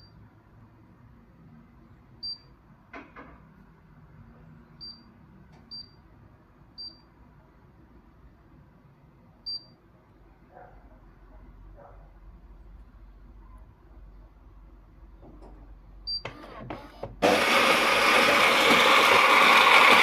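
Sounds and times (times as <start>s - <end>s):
coffee machine beeps: 16.1s - 20.0s.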